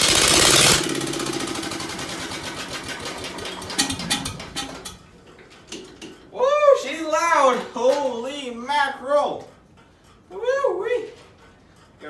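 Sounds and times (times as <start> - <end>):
engine starting and clattering: 0.0 - 6.2.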